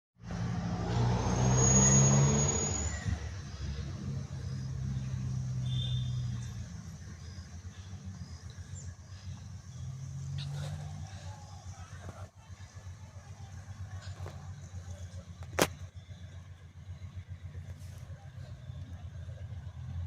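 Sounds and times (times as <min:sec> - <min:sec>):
diesel locomotive engine humming: 0:00.2 - 0:20.0
high-pitched squeal: 0:00.7 - 0:04.2.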